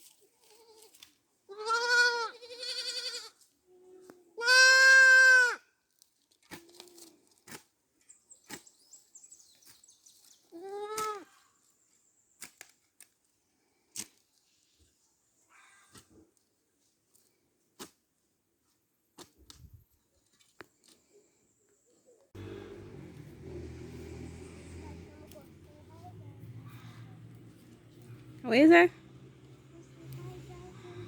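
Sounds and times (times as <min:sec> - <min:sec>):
goat bleating: 0:01.5 - 0:03.4, 0:04.4 - 0:05.6.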